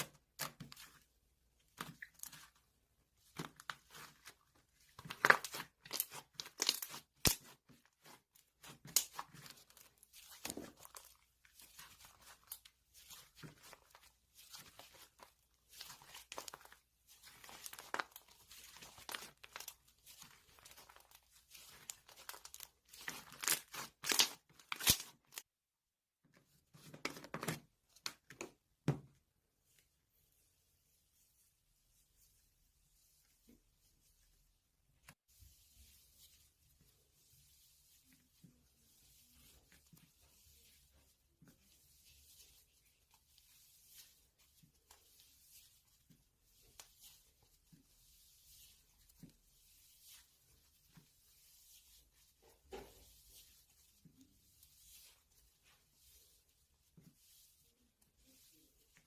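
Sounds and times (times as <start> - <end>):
wrapping crinkling and tearing: 5.0 - 11.3, 13.7 - 25.4.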